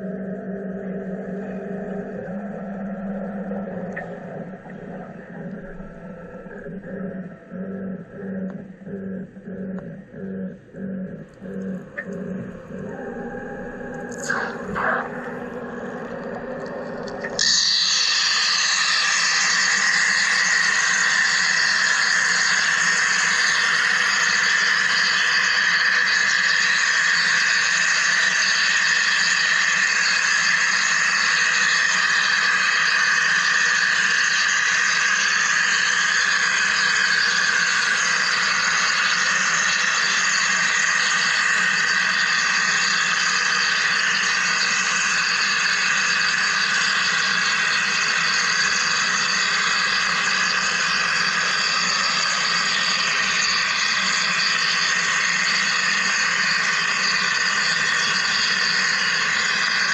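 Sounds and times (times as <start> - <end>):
low hum: 0.0 - 26.8
machine hiss: 12.0 - 59.9.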